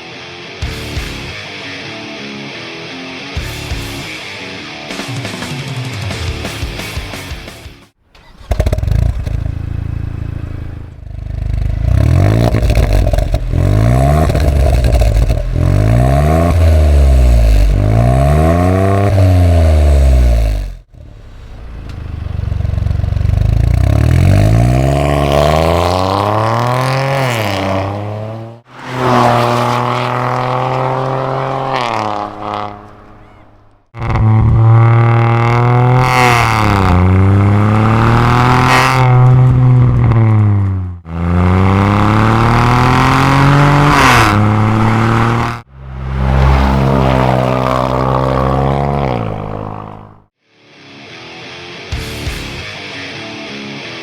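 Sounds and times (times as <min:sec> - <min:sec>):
car engine revving: 0:08.1 - 0:50.3.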